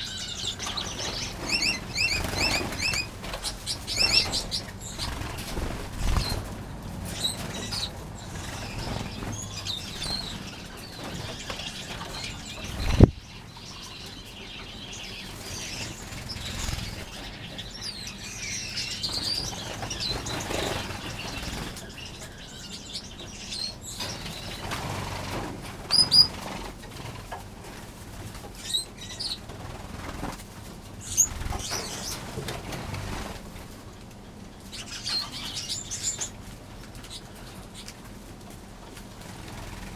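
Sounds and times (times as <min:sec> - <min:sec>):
wings fluttering: 0:00.0 - 0:14.0, 0:15.1 - 0:17.6, 0:18.8 - 0:22.7, 0:23.8 - 0:39.9
finches chirping: 0:00.0 - 0:26.6, 0:31.0 - 0:33.4, 0:34.5 - 0:36.4.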